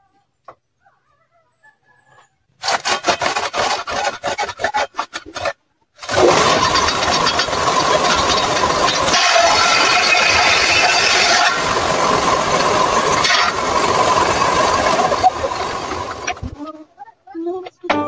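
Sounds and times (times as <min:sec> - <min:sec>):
rasping strokes on wood: 0:02.6 - 0:15.0
table saw whining: 0:02.6 - 0:16.6.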